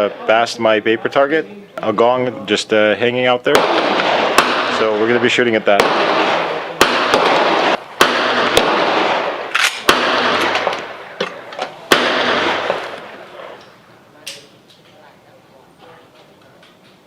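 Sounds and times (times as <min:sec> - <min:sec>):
rifle shots: 0:03.5 - 0:13.8.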